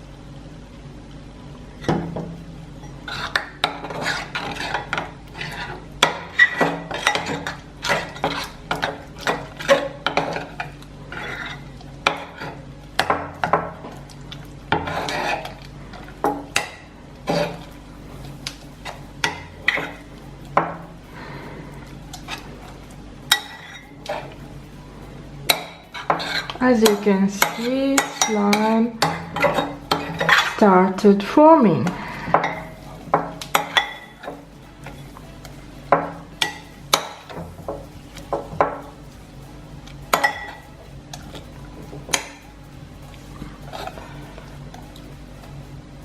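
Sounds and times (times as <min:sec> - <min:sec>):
utensil scraping and tapping a bowl: 0:14.7 - 0:17.7, 0:25.5 - 0:30.6.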